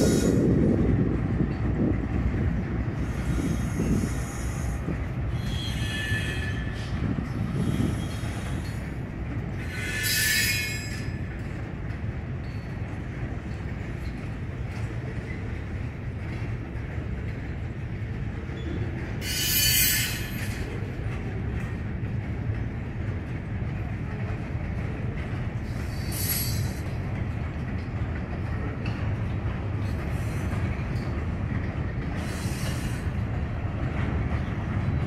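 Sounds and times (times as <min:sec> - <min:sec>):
train wheels rumbling on rail: 0:00.0 - 0:35.0
high-pitched wheel squeals: 0:05.3 - 0:06.9, 0:09.6 - 0:11.2, 0:18.6 - 0:20.6.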